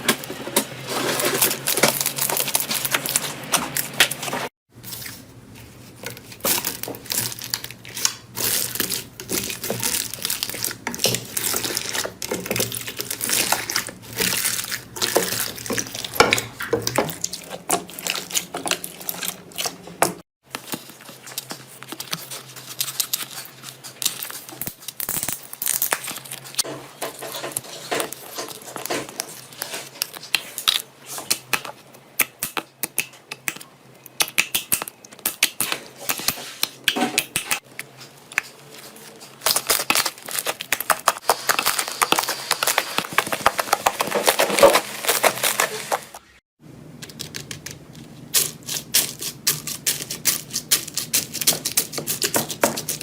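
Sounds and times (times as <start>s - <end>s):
slime crackling and popping: 39.3s - 46.1s.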